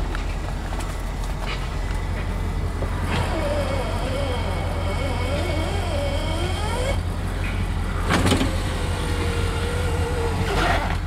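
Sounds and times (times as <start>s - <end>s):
car engine idling: 0.0s - 11.0s
power window motor whining: 3.0s - 7.1s, 8.0s - 11.0s.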